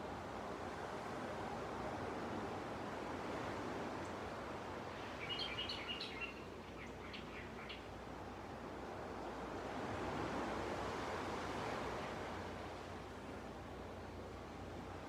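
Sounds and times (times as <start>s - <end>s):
small bird chirping: 5.2s - 7.8s.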